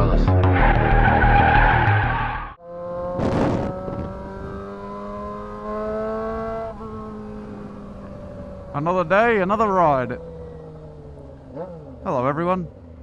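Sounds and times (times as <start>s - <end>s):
electronic intro music: 0.0s - 2.5s.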